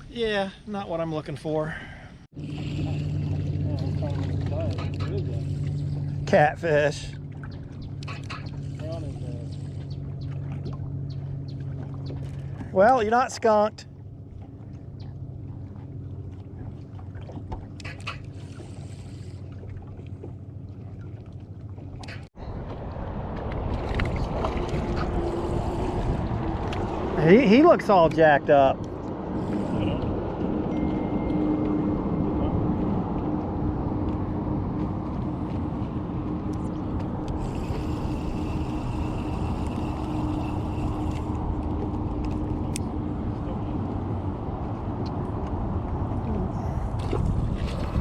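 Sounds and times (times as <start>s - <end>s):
wind: 0.0s - 48.0s
boat motor humming: 2.2s - 48.0s
knocks and splashes: 2.6s - 5.2s, 19.6s - 25.3s, 46.9s - 48.0s
water rushing: 22.4s - 44.9s.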